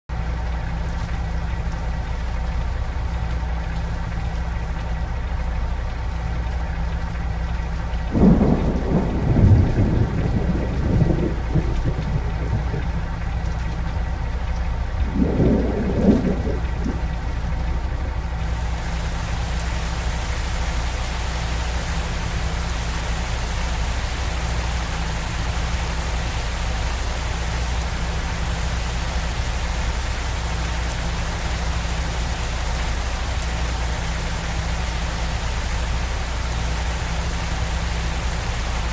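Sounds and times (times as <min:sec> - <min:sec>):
low steady drone: 0:00.1 - 0:38.9
steady rain: 0:00.1 - 0:38.9
rolls of thunder: 0:08.1 - 0:13.4, 0:14.9 - 0:18.5.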